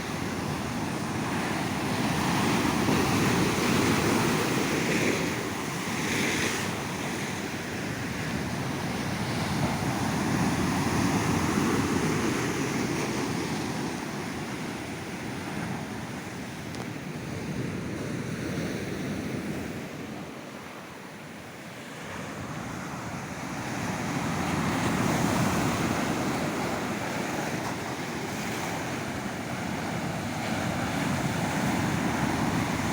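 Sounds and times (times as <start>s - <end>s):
sea surf breaking on beach: 0.0s - 32.9s
wind on microphone: 22.4s - 32.9s.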